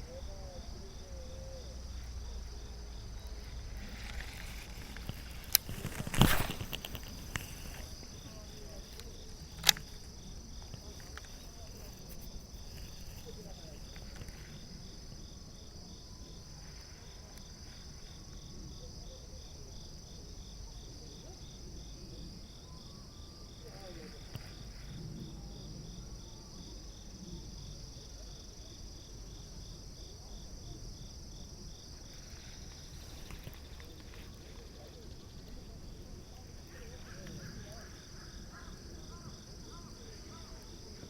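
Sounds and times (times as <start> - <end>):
insect high trill: 0.0 - 18.5
insect pulsing chirp: 0.0 - 41.0.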